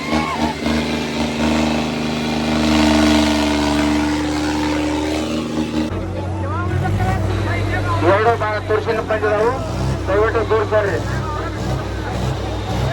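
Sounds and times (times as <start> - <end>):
tractor diesel engine straining: 0.0 - 12.9.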